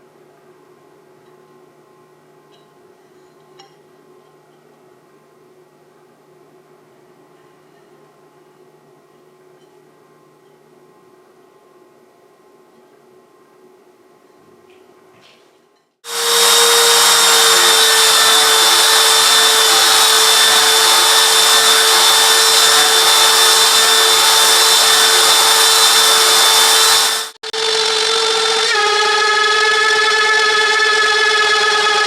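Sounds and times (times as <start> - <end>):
metal cutting noise: 16.0 - 32.0
router spindle high whine: 16.1 - 32.0.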